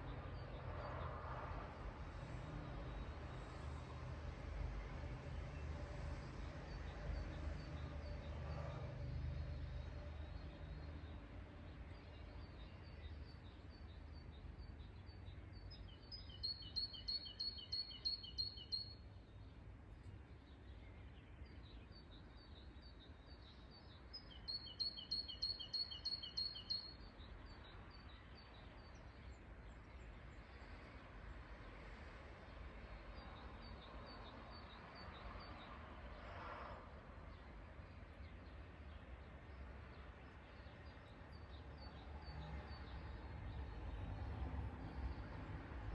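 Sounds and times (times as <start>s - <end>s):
songbird chirping: 9.8s - 30.9s.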